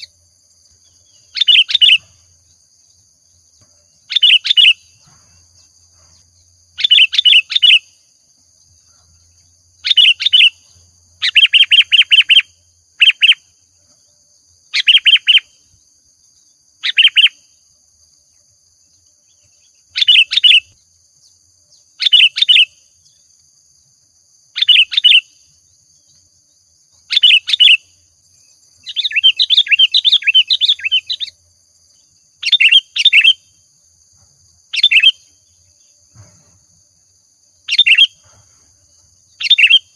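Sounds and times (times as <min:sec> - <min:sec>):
bird chattering song: 0:00.8 - 0:02.6, 0:03.9 - 0:08.0, 0:08.8 - 0:13.5, 0:14.7 - 0:15.6, 0:16.4 - 0:17.5, 0:19.2 - 0:23.3, 0:24.5 - 0:26.2, 0:27.0 - 0:33.5, 0:34.7 - 0:36.0, 0:37.6 - 0:38.3, 0:39.3 - 0:39.9.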